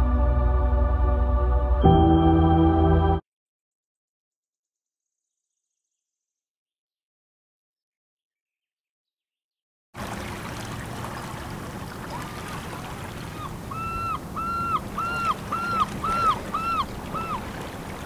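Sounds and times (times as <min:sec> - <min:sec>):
rushing water: 0:10.0 - 0:18.0
wind: 0:10.0 - 0:18.0
bird calling short notes: 0:13.3 - 0:17.5.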